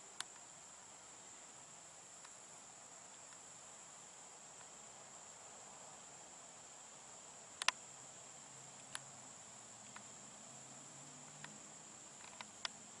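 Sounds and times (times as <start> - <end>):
insects chorus: 0.0 - 13.0
sharp clicks: 7.6 - 7.8, 12.2 - 12.8.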